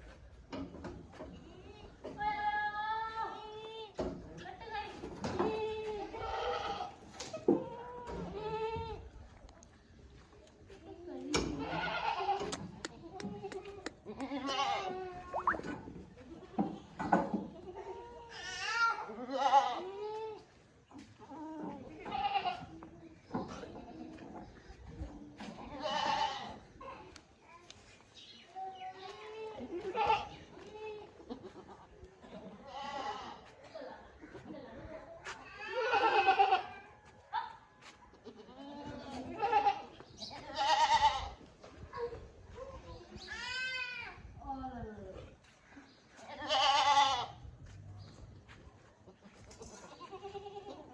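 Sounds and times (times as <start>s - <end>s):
goats bleating: 25.7s - 26.6s, 35.6s - 36.8s, 38.3s - 41.3s, 46.3s - 47.4s.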